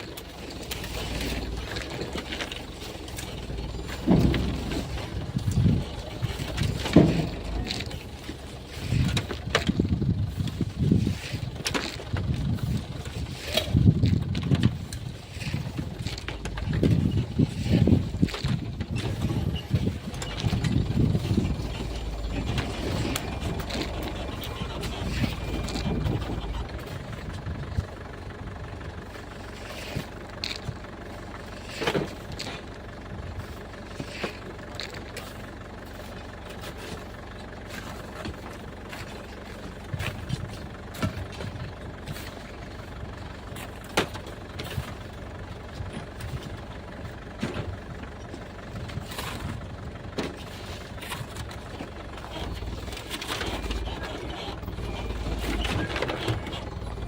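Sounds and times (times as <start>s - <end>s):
truck engine idling: 0.0s - 57.0s
sharp knocks and scrapes: 0.4s - 27.4s, 31.4s - 32.6s, 33.5s - 42.6s, 50.2s - 57.0s.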